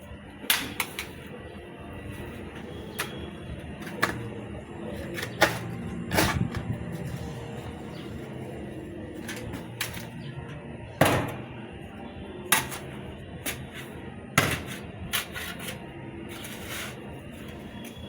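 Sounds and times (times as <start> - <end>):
low steady hum: 0.0 - 18.0
hard objects knocking: 2.6 - 7.0.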